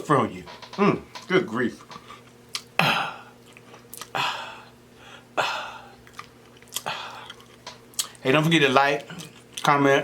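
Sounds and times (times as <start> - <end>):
chewing and mouth smacking: 1.9 - 2.7, 3.4 - 4.2, 6.0 - 8.2, 9.0 - 9.7.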